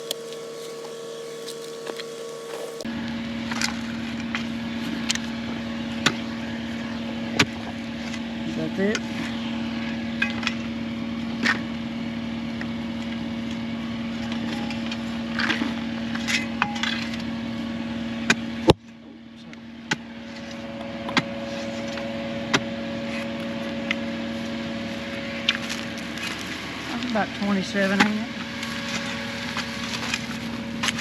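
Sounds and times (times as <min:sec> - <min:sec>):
machine engine idling: 0:00.0 - 0:31.0.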